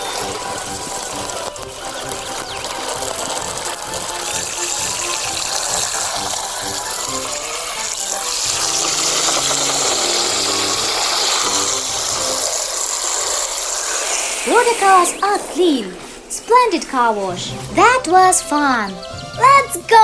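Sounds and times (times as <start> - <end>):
water spraying in toy car wash: 0.0 - 17.1.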